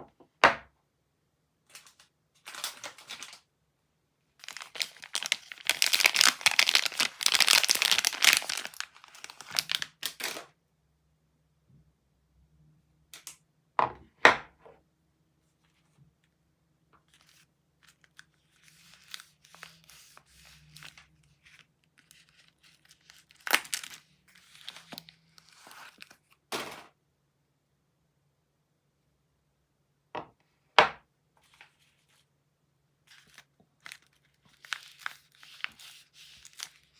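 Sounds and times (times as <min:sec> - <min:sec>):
wrapper tearing and crinkling: 0:01.7 - 0:03.4, 0:04.4 - 0:10.4, 0:17.2 - 0:26.2, 0:33.1 - 0:36.9.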